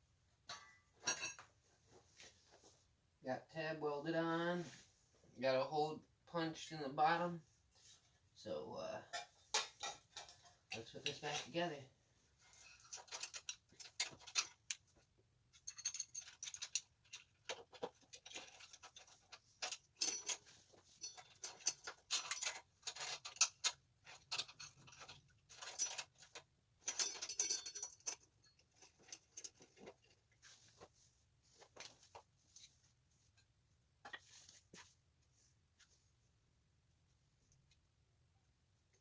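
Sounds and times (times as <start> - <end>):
metal parts clicking and clattering: 12.5 - 30.2.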